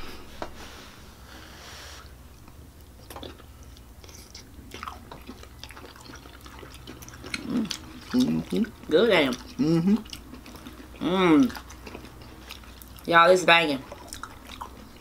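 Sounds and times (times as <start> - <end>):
low steady hum: 0.0 - 15.0
people chewing: 2.4 - 13.1, 13.8 - 15.0.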